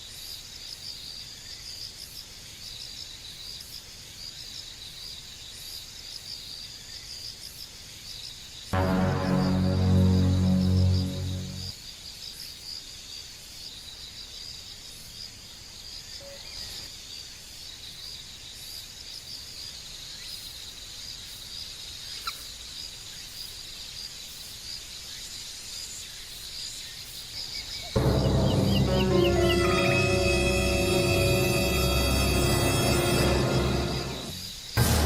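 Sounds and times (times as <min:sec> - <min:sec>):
loud background music: 0:08.8 - 0:11.7, 0:28.0 - 0:35.0.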